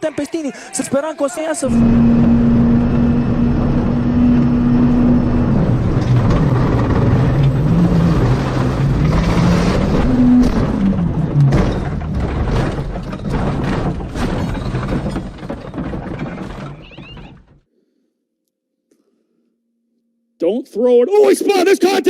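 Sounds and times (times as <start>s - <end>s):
race car engine revving: 1.7s - 11.5s
knocks and clatter: 1.8s - 17.6s.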